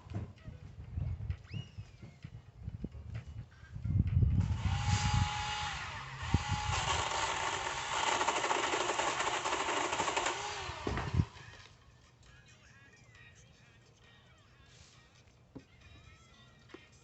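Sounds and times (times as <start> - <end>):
chainsaw revving: 4.4 - 11.5.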